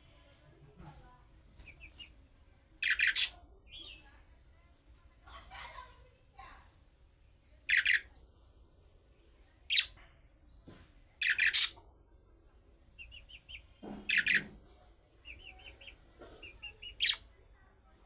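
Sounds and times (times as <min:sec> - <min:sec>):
budgerigar sharp calls: 0:02.8 - 0:03.3, 0:07.7 - 0:08.0, 0:11.2 - 0:11.8, 0:14.1 - 0:14.6
budgerigar soft chirps: 0:02.8 - 0:04.0, 0:07.6 - 0:08.1, 0:09.7 - 0:10.0, 0:10.6 - 0:11.8, 0:13.0 - 0:17.3.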